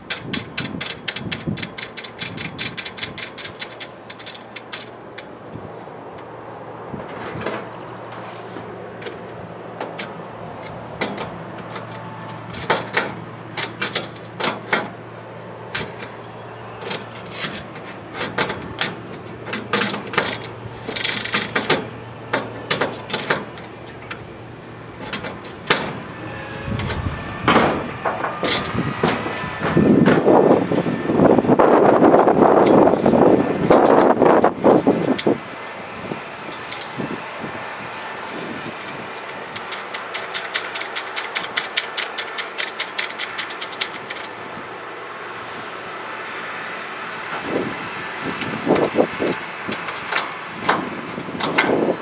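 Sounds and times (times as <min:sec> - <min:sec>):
ratchet spanner clicking: 0:00.0 - 0:05.3, 0:09.0 - 0:14.9, 0:16.8 - 0:24.3, 0:38.8 - 0:44.5
metal parts clicking and knocking: 0:00.0 - 0:05.4, 0:09.0 - 0:15.0, 0:15.7 - 0:30.9, 0:31.8 - 0:35.4, 0:36.5 - 0:37.1, 0:38.8 - 0:44.6, 0:48.4 - 0:52.0
low steady hum: 0:00.0 - 0:50.0.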